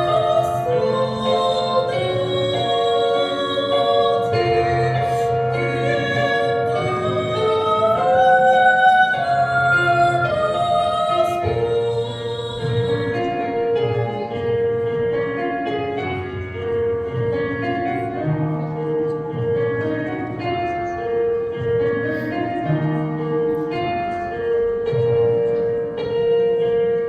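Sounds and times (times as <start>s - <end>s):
woman singing with vibrato: 0.0s - 14.5s
instrumental accompaniment: 0.0s - 27.0s.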